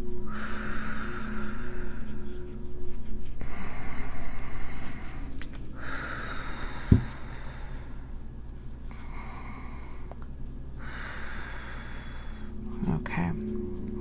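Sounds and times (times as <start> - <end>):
person breathing deeply: 0.2 - 2.6, 3.4 - 8.3, 8.9 - 10.2, 10.8 - 12.7.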